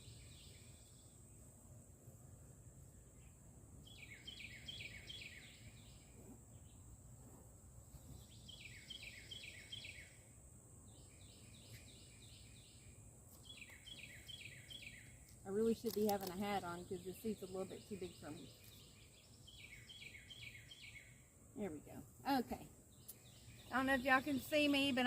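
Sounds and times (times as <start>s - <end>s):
songbird singing faintly: 0.0s - 25.0s.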